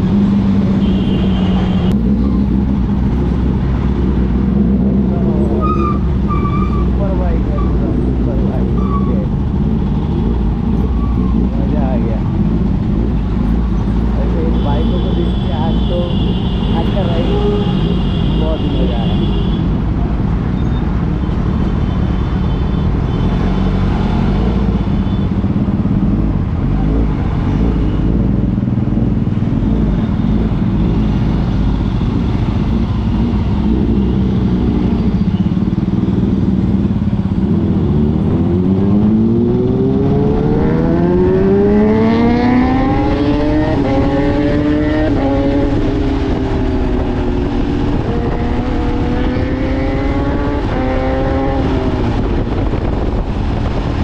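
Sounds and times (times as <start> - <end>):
motorcycle riding: 0.0 - 54.0
wind and road noise: 0.0 - 54.0
engine accelerating through gears: 37.4 - 53.9.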